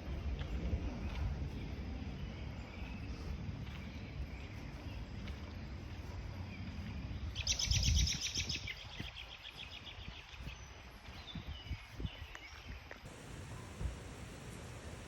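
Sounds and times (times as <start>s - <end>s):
bird chirps: 6.5s - 12.8s
songbird trilling: 7.3s - 10.6s.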